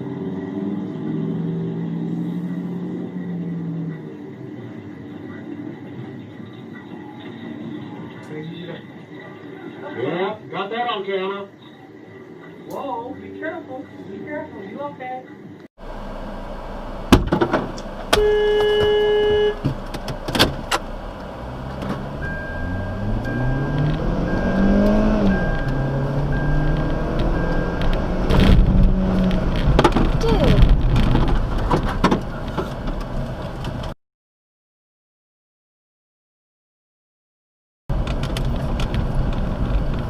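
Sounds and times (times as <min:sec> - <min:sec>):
engine revving: 0:00.0 - 0:04.9, 0:18.0 - 0:31.7
car horn: 0:18.1 - 0:19.8
short repeated beeping: 0:22.1 - 0:28.2
knocks and clicks: 0:26.6 - 0:33.9.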